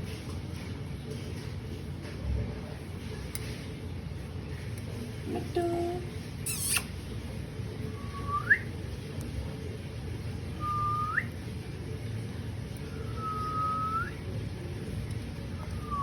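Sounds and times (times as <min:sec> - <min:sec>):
whistles sliding up: 0:06.5 - 0:06.9, 0:13.1 - 0:14.2.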